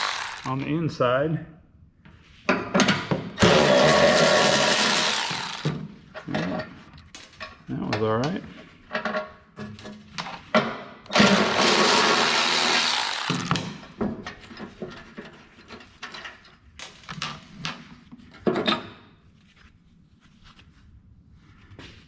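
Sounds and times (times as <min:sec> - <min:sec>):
power tool running: 0:00.0 - 0:00.6, 0:03.4 - 0:05.8, 0:11.1 - 0:13.7.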